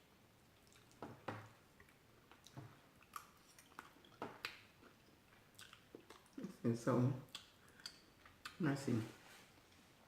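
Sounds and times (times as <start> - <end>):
chewing and wet mouth sounds: 0.5 - 6.6, 7.2 - 8.6
small mouth clicks: 7.3 - 8.6.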